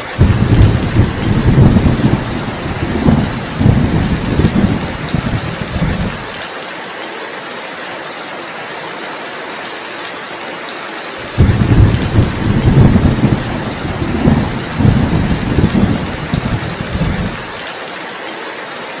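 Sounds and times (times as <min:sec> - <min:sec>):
thunder rumbling: 0:00.0 - 0:06.4, 0:11.2 - 0:17.6
heavy rain hiss: 0:00.0 - 0:08.7, 0:09.7 - 0:19.0.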